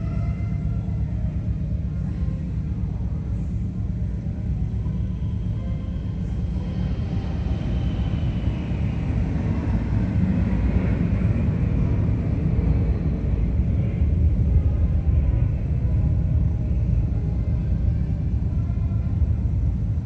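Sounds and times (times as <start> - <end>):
piston aircraft engines rumbling: 0.0 - 20.0.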